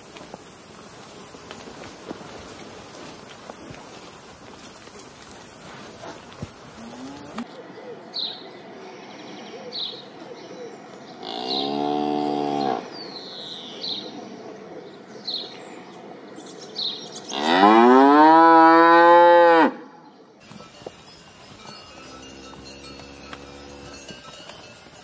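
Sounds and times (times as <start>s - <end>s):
cattle mooing: 6.8s - 7.4s.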